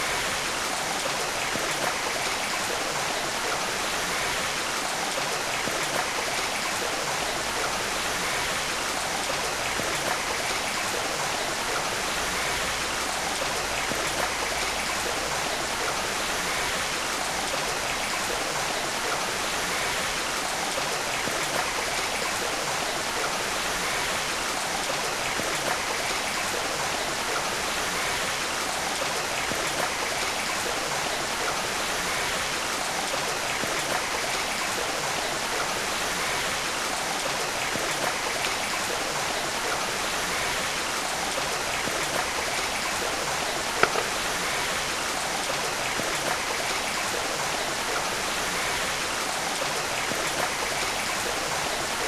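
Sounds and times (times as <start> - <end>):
stream water rushing: 0.0 - 52.0
sharp click: 43.8 - 44.2.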